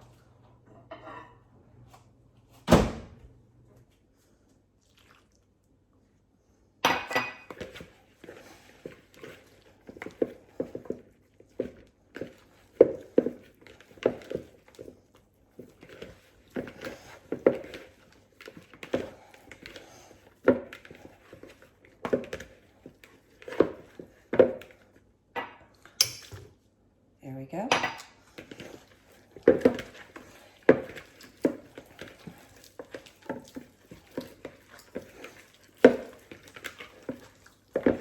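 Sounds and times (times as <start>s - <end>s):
mixture stirred in a bowl: 4.2s - 6.0s, 6.9s - 25.2s, 28.0s - 38.0s.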